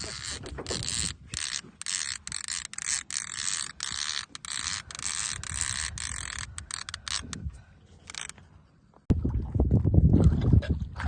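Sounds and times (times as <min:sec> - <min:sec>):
fishing reel whirring: 0:00.0 - 0:07.4, 0:08.1 - 0:08.4.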